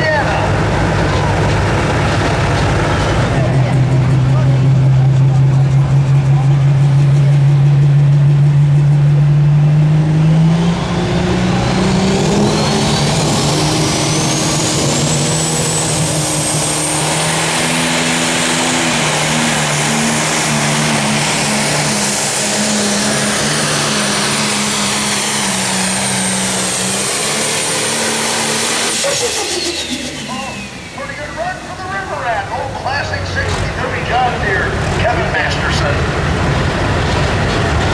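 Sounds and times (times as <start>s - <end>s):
diesel engine at full power: 0.0s - 37.9s
high turbo whistle: 10.8s - 32.1s.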